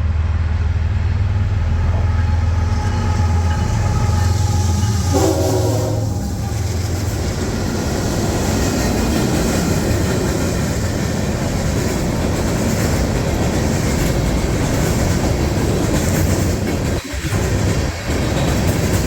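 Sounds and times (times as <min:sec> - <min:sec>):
freight train wheels rumbling: 0:00.0 - 0:19.0.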